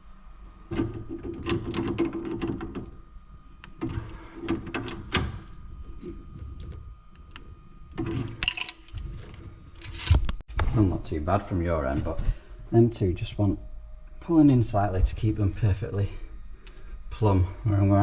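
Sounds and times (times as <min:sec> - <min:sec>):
tools and pipe fittings clicking: 0:08.0 - 0:10.4.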